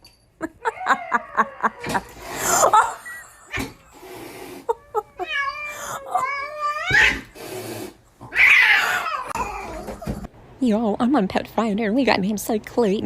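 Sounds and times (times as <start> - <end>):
cat yowling: 4.8 - 7.4, 8.2 - 10.2.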